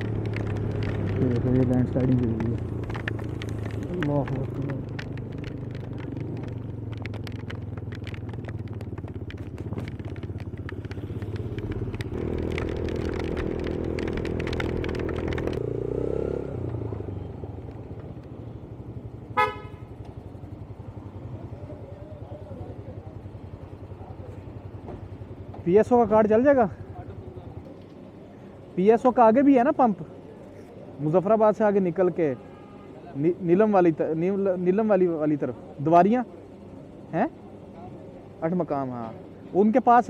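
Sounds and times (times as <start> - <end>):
sharp clicks and knocks: 0.0 - 15.6
motorcycle engine running: 0.0 - 27.8
vehicle horn: 19.4 - 20.0, 32.4 - 33.0.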